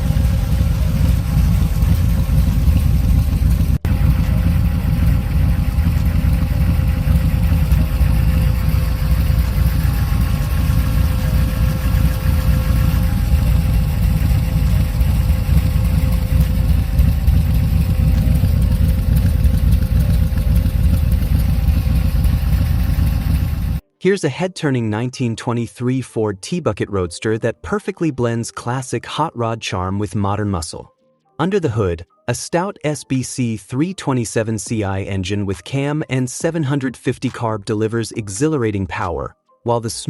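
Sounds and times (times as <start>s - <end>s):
car engine idling: 0.0s - 23.8s.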